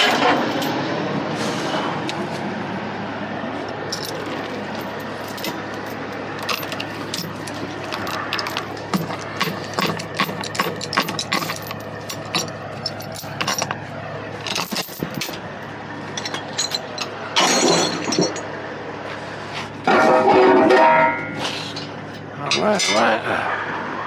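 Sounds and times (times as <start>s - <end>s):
metallic clinks and clanks: 3.9s - 13.8s, 14.4s - 15.4s, 16.1s - 18.5s, 19.8s - 23.2s.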